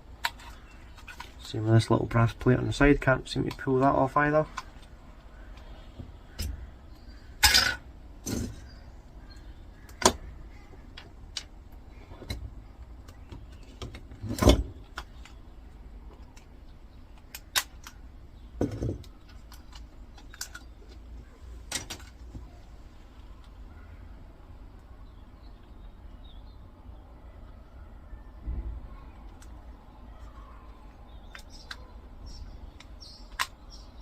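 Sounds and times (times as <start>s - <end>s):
small metal and plastic parts clicking: 0.2s - 1.6s, 18.7s - 21.0s.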